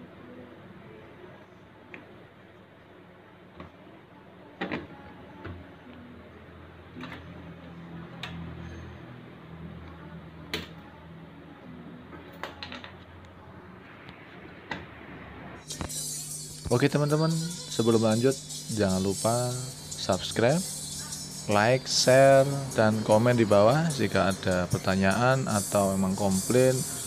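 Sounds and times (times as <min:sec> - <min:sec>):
music: 0:15.6 - 0:27.0.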